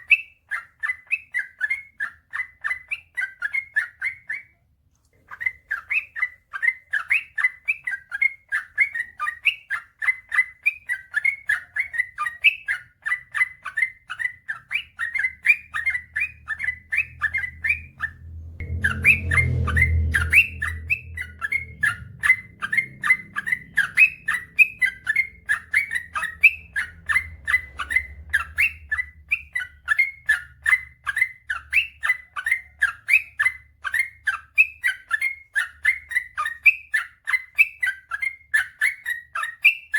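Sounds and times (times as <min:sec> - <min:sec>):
bird singing chirpy notes: 0:05.3 - 0:39.9
low rumble: 0:16.5 - 0:29.6.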